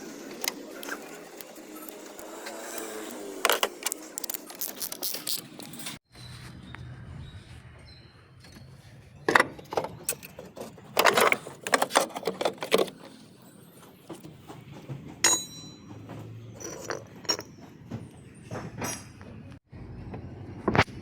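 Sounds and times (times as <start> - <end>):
metal tools clinking and clattering: 9.3 - 19.3.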